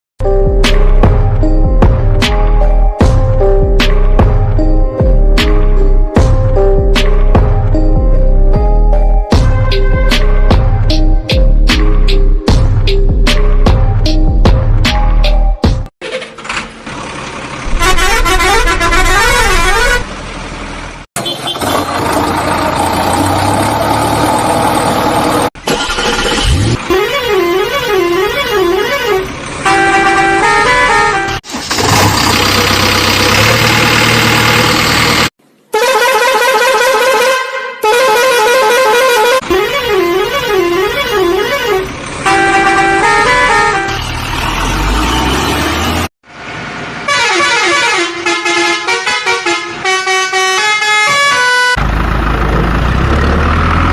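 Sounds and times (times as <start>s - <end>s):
truck engine: 0.2s - 36.5s, 38.0s - 53.9s
wavering vehicle horn: 9.4s - 10.8s, 17.6s - 20.2s, 26.8s - 31.4s, 35.7s - 46.1s, 47.1s - 51.8s
short stepped horn tune: 17.7s - 20.1s.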